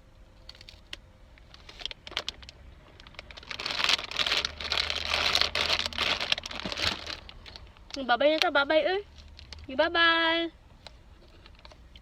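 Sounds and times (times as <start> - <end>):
plastic snack wrapper crinkling: 0.4 - 8.5.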